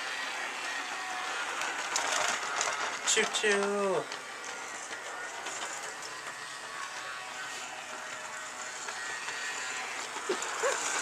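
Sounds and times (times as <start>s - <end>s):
toy train running on track: 0.0s - 11.0s.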